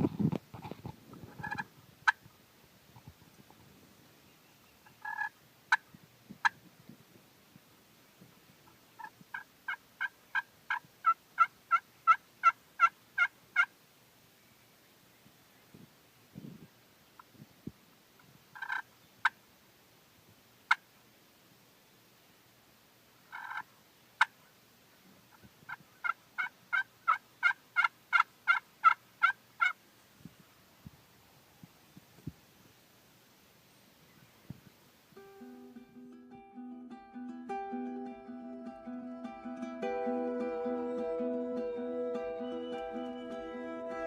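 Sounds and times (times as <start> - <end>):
turkey yelping: 1.4 - 2.2, 5.0 - 5.3, 9.0 - 13.7, 18.6 - 18.8, 23.3 - 23.6, 26.0 - 29.8
turkey yelps: 5.0 - 5.3, 18.6 - 18.8, 23.3 - 23.6, 26.0 - 29.8.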